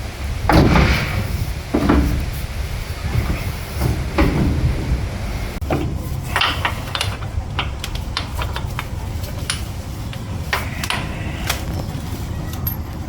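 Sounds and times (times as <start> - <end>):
steady low rumble: 0.0 - 13.0
hand tools clicking on bolts: 5.7 - 11.9.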